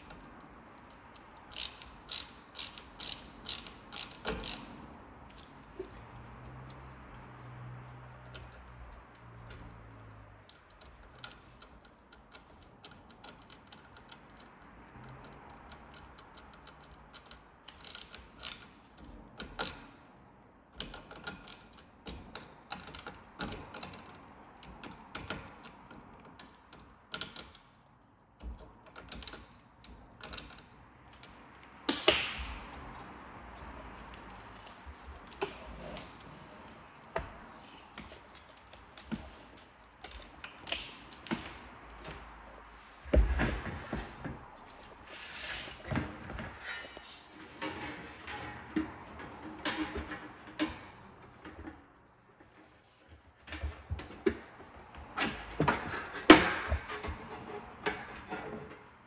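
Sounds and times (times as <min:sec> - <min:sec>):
small parts and tools clicking: 0:00.1 - 0:20.0.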